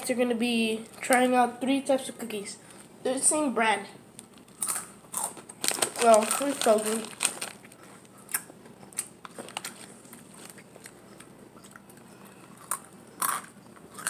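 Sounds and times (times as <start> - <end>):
crunchy chips being chewed: 4.2 - 14.0.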